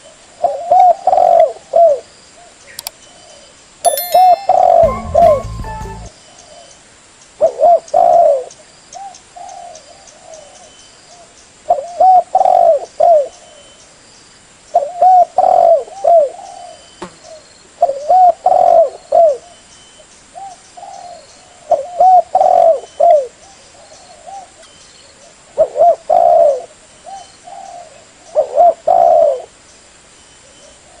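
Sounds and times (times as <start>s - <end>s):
dove cooing: 27.5s - 29.4s.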